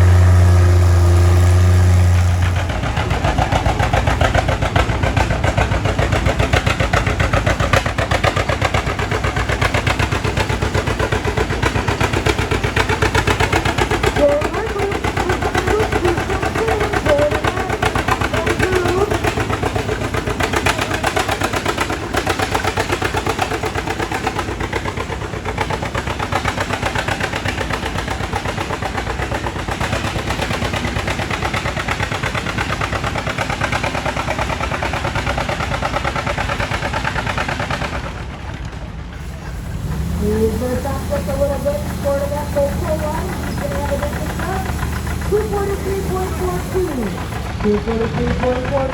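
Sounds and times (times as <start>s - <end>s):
tractor engine running under load: 0.0s - 48.9s.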